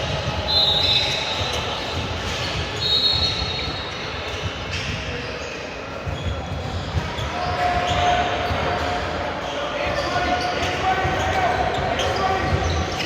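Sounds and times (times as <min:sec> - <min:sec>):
shoes squeaking on gym floor: 0:00.2 - 0:08.6.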